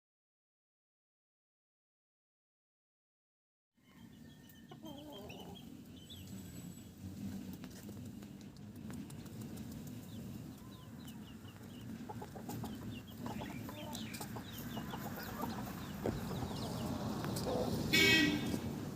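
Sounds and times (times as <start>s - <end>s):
chickens clucking: 3.9s - 18.8s.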